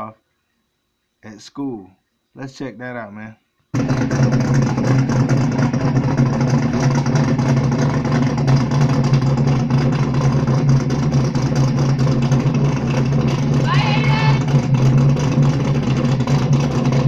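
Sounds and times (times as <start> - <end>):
car engine idling with pulsing exhaust: 3.8 - 17.0.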